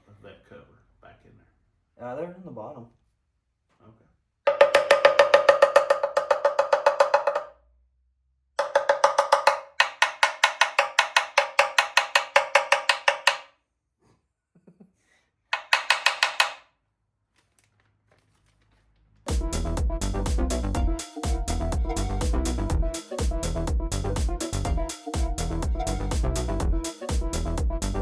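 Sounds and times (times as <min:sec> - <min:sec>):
impact wrench hammering: 0:04.5 - 0:07.5, 0:08.6 - 0:13.5, 0:15.6 - 0:16.7.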